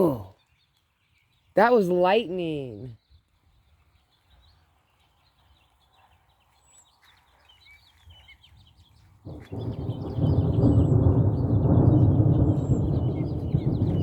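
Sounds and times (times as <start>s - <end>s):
faint bird chirps: 9.3s - 14.0s
thunder rumble: 9.3s - 14.0s.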